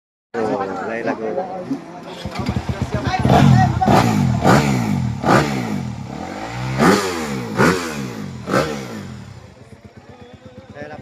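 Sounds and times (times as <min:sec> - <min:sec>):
dirt bike engines revving: 0:02.0 - 0:11.0.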